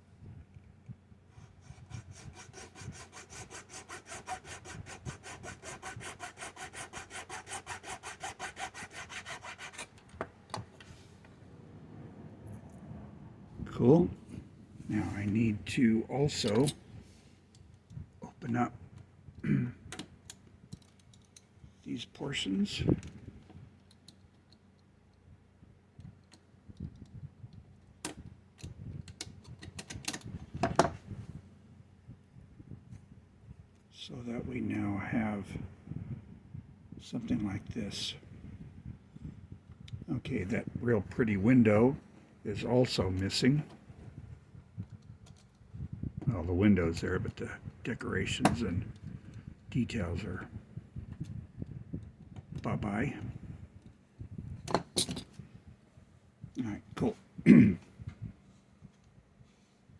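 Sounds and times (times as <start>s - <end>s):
hand saw cutting plastic: 1.8s - 10.0s.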